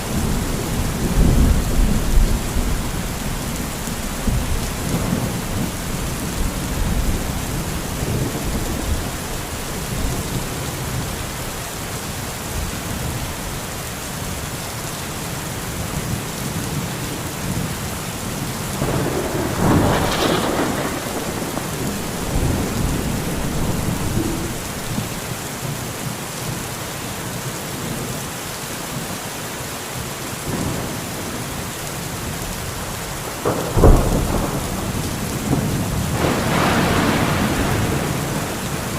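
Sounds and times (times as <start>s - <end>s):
rolling thunder: 0.0s - 11.4s, 18.7s - 25.4s, 33.4s - 38.9s
steady rain: 0.0s - 38.9s.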